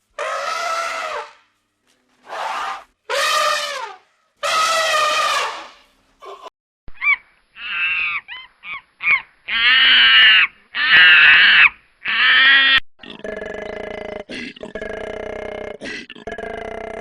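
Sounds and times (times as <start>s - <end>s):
loud harsh animal calls: 0.2s - 1.4s, 2.2s - 6.4s, 7.0s - 12.8s
animal cries: 2.3s - 12.8s.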